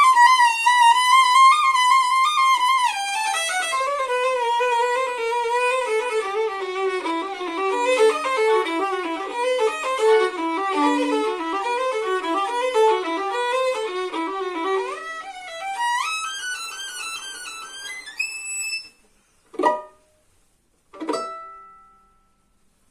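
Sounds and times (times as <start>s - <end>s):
violin playing fast notes: 0.0s - 18.8s
plucked pizzicato chords: 5.6s - 15.0s, 19.5s - 20.1s, 20.9s - 21.8s.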